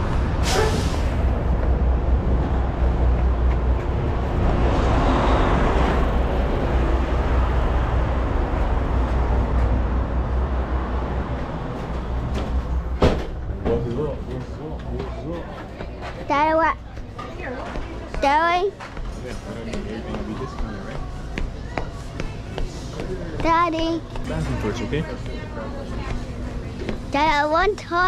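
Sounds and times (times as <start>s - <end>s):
diesel truck engines rumbling: 0.0s - 17.0s.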